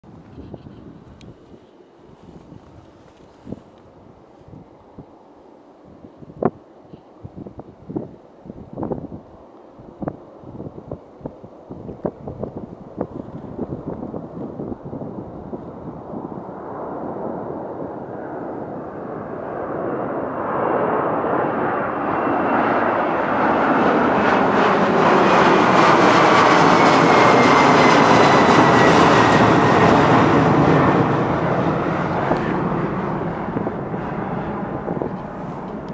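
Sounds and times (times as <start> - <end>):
jet engine whine: 0.1 - 35.9
jet plane taking off: 9.3 - 35.9.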